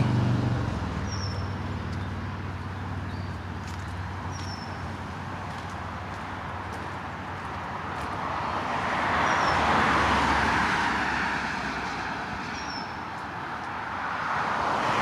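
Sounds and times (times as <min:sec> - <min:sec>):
car passing on highway: 0:00.0 - 0:15.0
bird high chirp: 0:01.1 - 0:02.2, 0:04.3 - 0:04.8.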